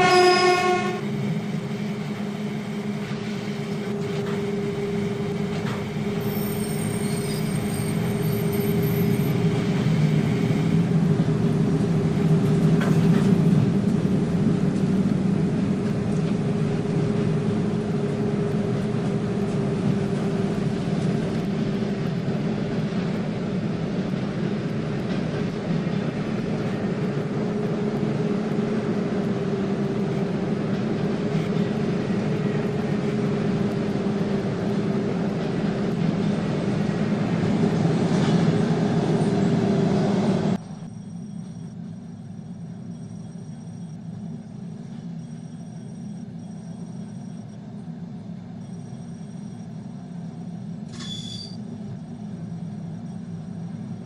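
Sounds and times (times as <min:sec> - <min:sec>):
train wheels rumbling on rails: 0:00.0 - 0:40.8.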